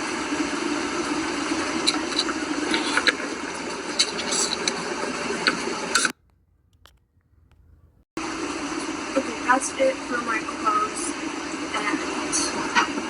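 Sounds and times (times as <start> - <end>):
continuous spraying hiss: 0.5 - 6.1
small clicks: 6.0 - 8.0.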